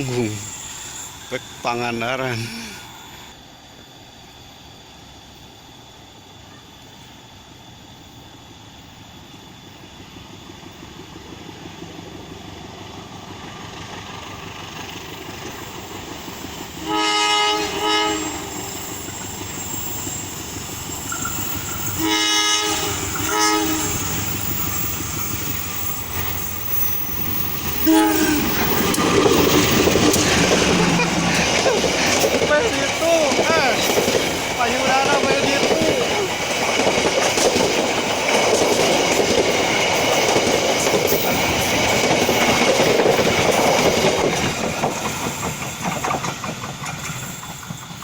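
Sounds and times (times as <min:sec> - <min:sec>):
diesel train rumble: 0:00.0 - 0:03.6, 0:07.0 - 0:48.0
locomotive horn blasts: 0:16.8 - 0:18.6, 0:22.0 - 0:24.1, 0:27.8 - 0:28.8
wheels clattering over rail joints: 0:22.8 - 0:48.0.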